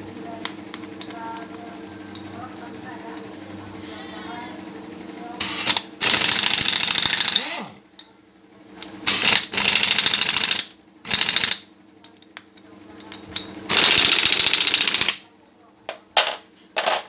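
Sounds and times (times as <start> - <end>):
pneumatic impact wrench rattling: 5.4 - 7.8, 9.0 - 11.6, 13.7 - 15.2.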